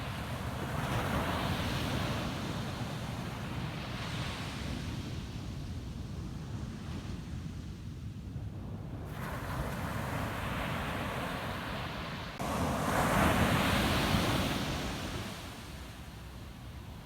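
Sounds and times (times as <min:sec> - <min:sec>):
ocean waves breaking on beach: 0:00.0 - 0:05.3, 0:09.0 - 0:17.0.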